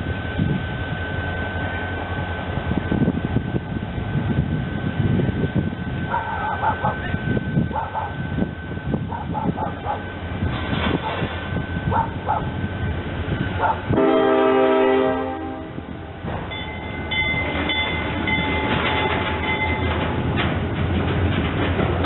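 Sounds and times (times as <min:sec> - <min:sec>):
high whine from train: 0:00.0 - 0:22.0
train running noise: 0:00.0 - 0:22.0
train horn: 0:13.6 - 0:16.1.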